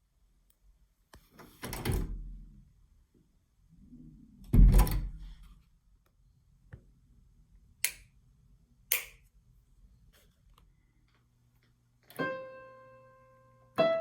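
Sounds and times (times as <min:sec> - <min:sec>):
heavy thud: 0:04.5 - 0:05.2
sharp clicks: 0:08.9 - 0:09.2.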